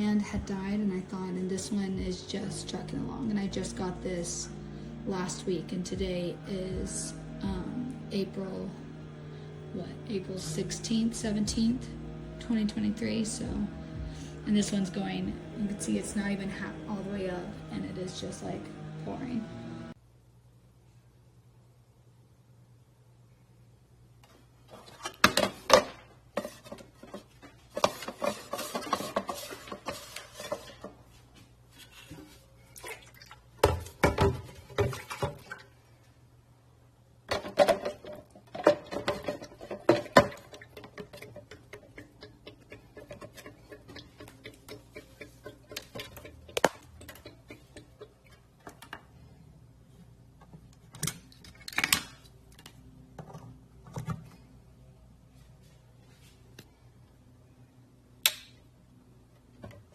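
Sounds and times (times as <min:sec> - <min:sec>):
faint low hum: 0:00.0 - 0:25.0
knocks and clattering handling: 0:37.3 - 0:49.2.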